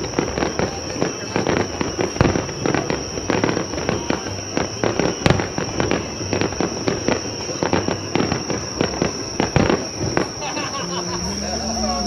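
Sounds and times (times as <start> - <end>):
fireworks crackling: 0.0 - 12.0
steady high-pitched tone: 10.7 - 12.0.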